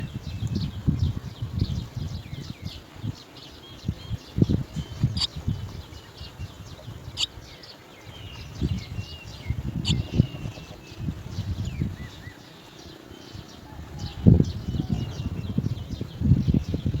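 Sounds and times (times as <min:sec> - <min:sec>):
birds chirping: 0:02.1 - 0:17.0.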